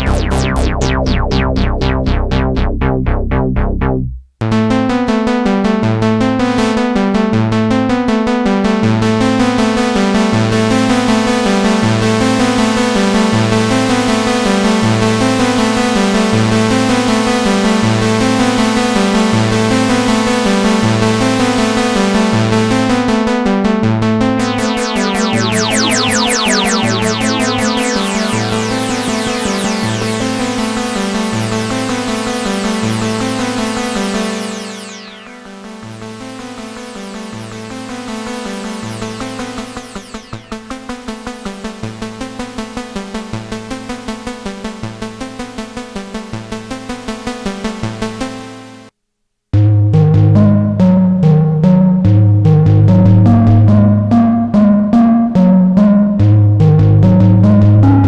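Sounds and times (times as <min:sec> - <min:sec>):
pulsing synthesizer sequence: 0:00.0 - 0:04.2, 0:09.0 - 0:41.5
stepping synth bass line: 0:00.0 - 0:04.9, 0:24.0 - 0:32.2, 0:49.6 - 0:58.0.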